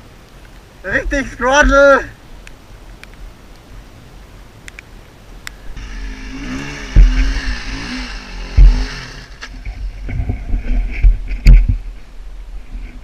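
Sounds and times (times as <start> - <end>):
heavy low thumps: 5.8 - 9.3
dirt bike engine revving: 5.8 - 10.1.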